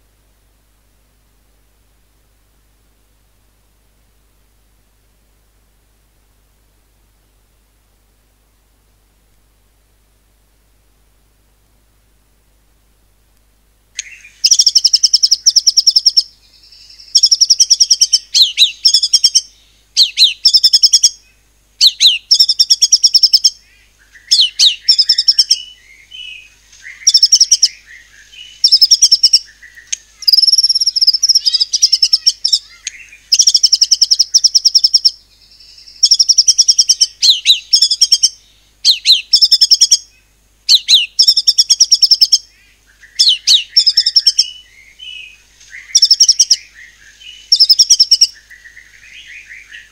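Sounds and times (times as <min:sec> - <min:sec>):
bird singing whistled notes: 0:14.0 - 0:21.2, 0:21.8 - 0:49.9.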